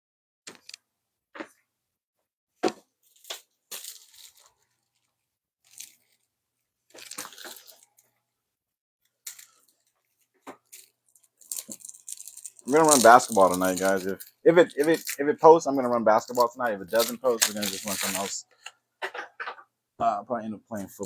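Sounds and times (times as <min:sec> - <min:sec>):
crinkling and rustling: 0:02.6 - 0:06.3, 0:06.9 - 0:08.2, 0:09.1 - 0:19.6.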